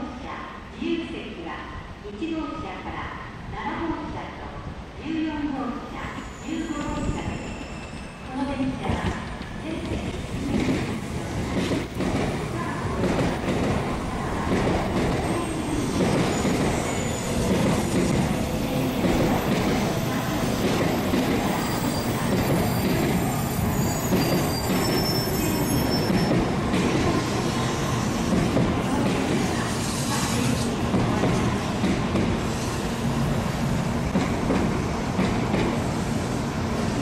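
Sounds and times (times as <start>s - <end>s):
faint high squeals: 6.1s - 8.4s, 21.5s - 26.4s
train wheels rumbling: 6.1s - 37.0s.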